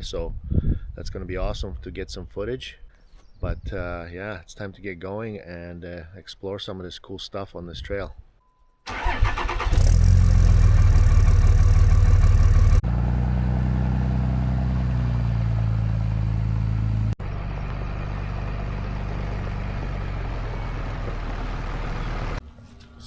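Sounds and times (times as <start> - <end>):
diesel truck engine running: 8.9 - 22.4.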